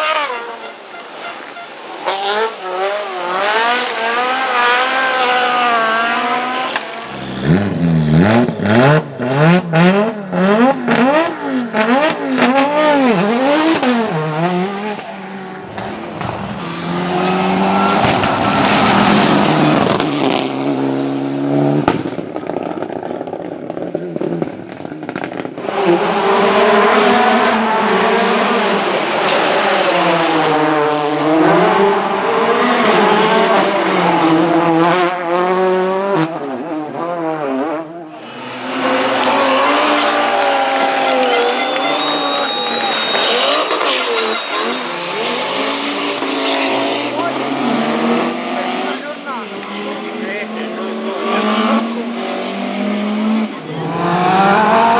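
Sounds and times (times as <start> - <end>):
rally cars engines revving: 0.0 - 54.9
exhaust pops and bangs: 6.7 - 16.6, 21.8 - 23.1.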